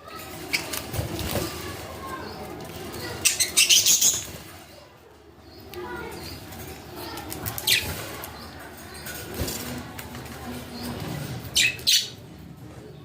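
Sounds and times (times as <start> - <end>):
wings fluttering: 0.2 - 4.8
budgies chirping: 0.4 - 4.6, 10.8 - 12.2.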